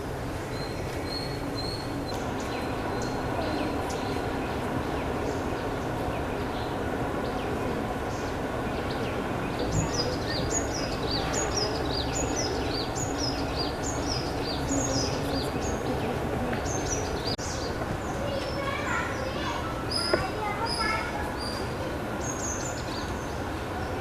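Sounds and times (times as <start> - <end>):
outdoor background hiss: 0.0 - 24.0
bird calling: 0.5 - 23.4.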